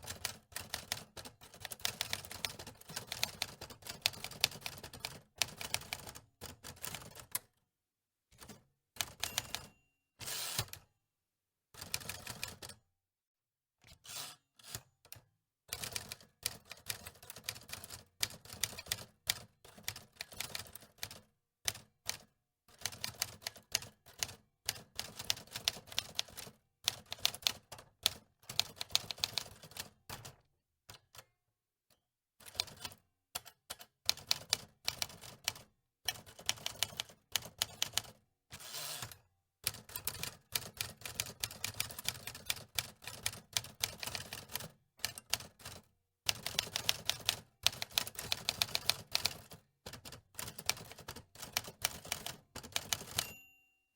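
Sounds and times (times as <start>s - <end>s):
typewriter keys clacking: 46.3s - 53.4s.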